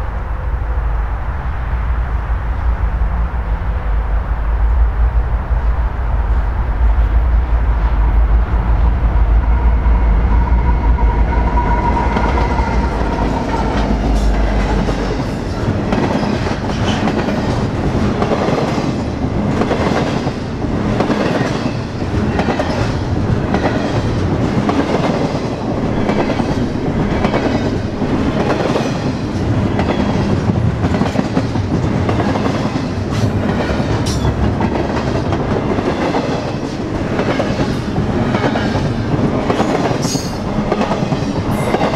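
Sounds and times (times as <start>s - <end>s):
locomotive whine: 0.0s - 30.9s
train passing with low rumble: 0.0s - 41.9s.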